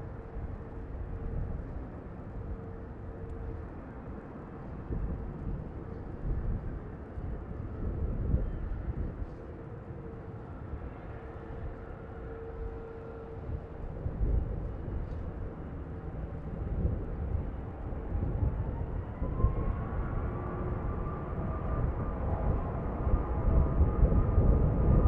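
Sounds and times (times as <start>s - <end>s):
gusty wind on microphone: 0.0s - 9.6s, 10.6s - 25.0s
jet airliner engines: 0.0s - 25.0s
rising engine whine: 10.2s - 25.0s.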